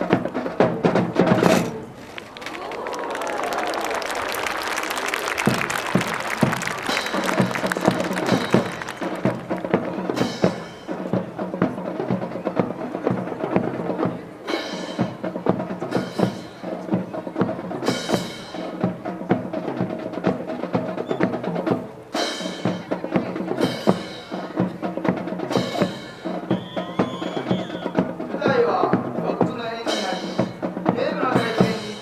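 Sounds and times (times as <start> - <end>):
band music with drums: 0.0 - 32.0
sharp percussive clacks: 3.5 - 11.1.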